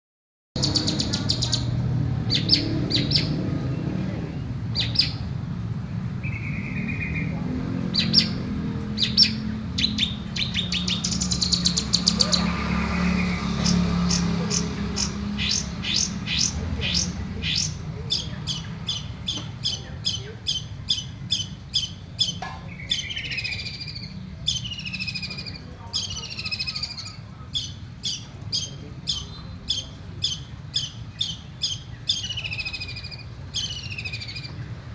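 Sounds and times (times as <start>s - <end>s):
shrike singing: 6.2s - 34.8s.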